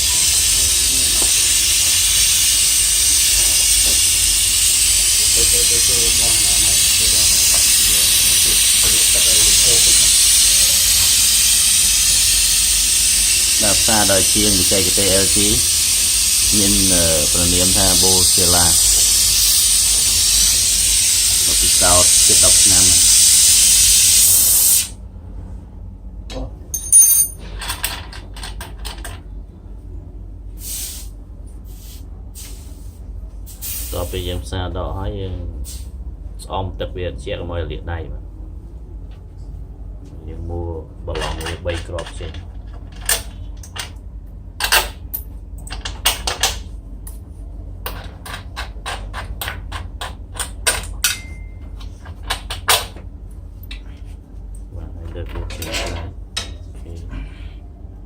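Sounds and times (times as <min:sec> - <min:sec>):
gas hissing: 0:00.0 - 0:25.0, 0:30.5 - 0:34.5, 0:35.6 - 0:36.0
steady low hum: 0:00.0 - 0:58.0.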